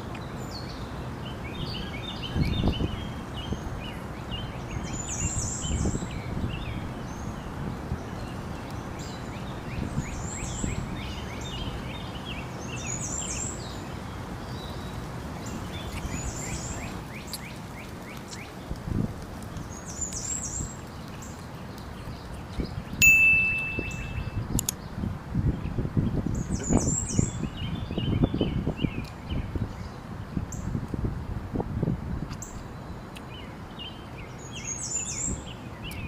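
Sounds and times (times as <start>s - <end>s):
small birds chirping: 0.0s - 30.8s, 32.3s - 36.0s
outdoor background noise: 0.0s - 36.0s
loud high-pitched tone: 23.0s - 24.4s.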